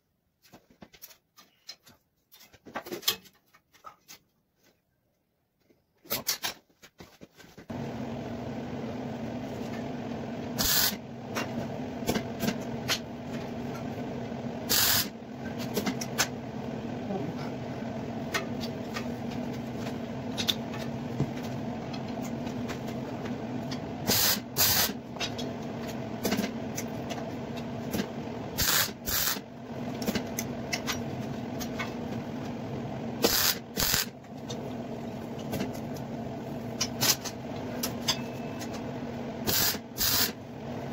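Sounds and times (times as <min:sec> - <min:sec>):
welding equipment humming: 0:07.7 - 0:40.9
welding crackling bursts: 0:10.6 - 0:11.0, 0:14.7 - 0:15.1, 0:24.1 - 0:25.0, 0:28.6 - 0:29.4, 0:33.2 - 0:34.1, 0:39.5 - 0:40.4.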